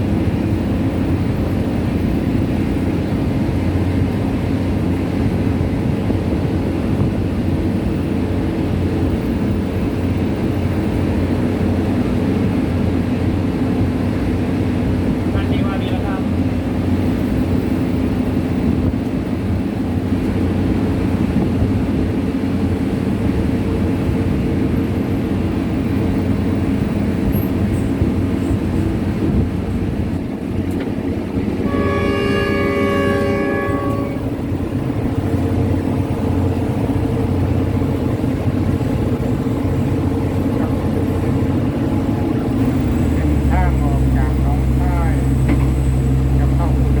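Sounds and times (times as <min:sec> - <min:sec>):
train rumbling: 0:00.0 - 0:47.0
train horn blast: 0:31.6 - 0:34.7.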